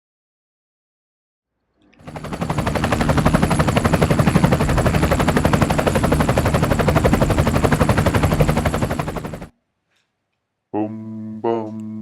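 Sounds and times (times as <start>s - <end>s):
steady hum: 2.0s - 9.5s.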